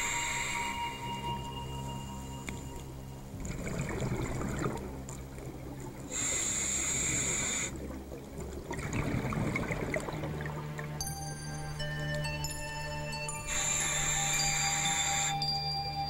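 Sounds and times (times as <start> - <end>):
regulator inhalation hiss: 0.0 - 1.4, 6.1 - 7.8, 13.4 - 15.7
exhaled bubbles gurgling underwater: 3.2 - 11.0.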